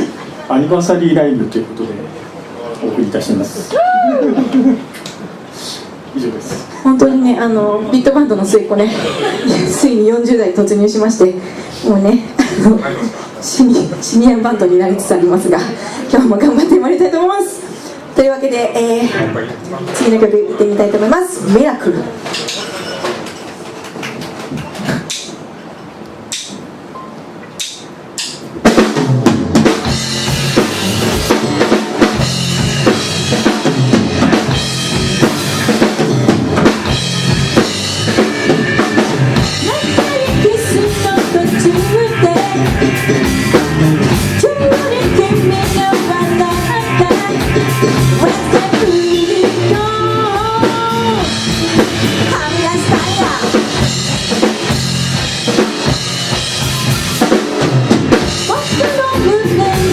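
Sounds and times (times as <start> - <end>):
sharp clicks: 26.3 - 26.6
rock band playing live: 27.7 - 59.9.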